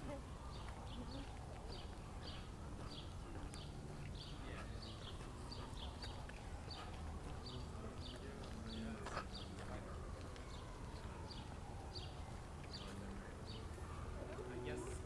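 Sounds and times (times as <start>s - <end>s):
footsteps on path: 0.0s - 15.0s
low city rumble: 0.0s - 15.0s.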